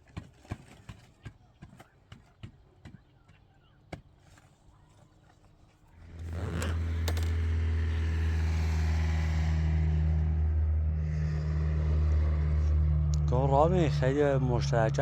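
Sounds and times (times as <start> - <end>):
engine starting and running: 6.0 - 8.1.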